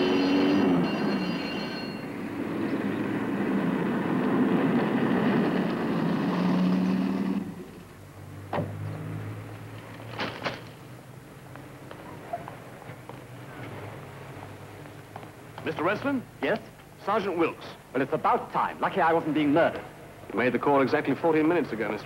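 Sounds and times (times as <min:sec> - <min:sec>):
motor vehicle running: 0:00.0 - 0:16.2.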